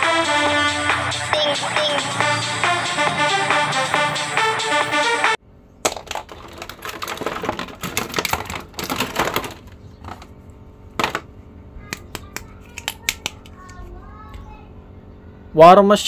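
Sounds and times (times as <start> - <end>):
plastic blister tray crackling: 5.8 - 10.3.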